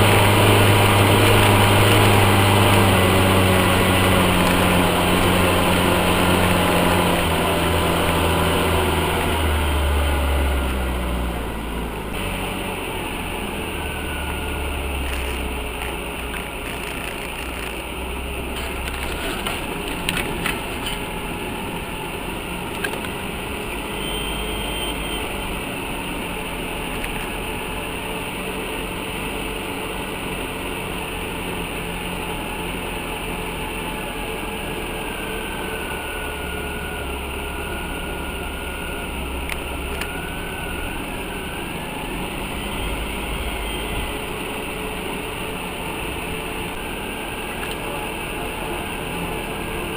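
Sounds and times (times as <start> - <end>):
off-road vehicle engine running: 0.0 - 49.9.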